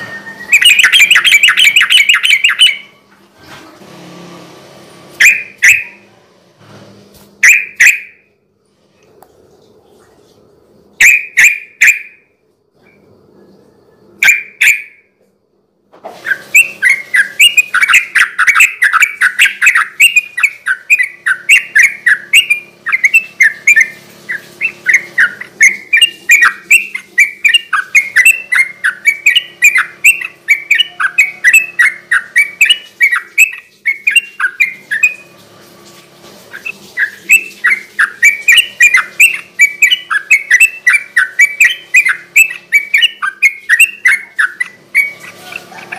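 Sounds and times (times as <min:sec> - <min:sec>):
bird singing rapid chirps: 0:00.0 - 0:03.0, 0:05.2 - 0:06.1, 0:07.4 - 0:08.2, 0:11.0 - 0:12.2, 0:14.2 - 0:15.0, 0:16.3 - 0:35.3, 0:36.6 - 0:45.9.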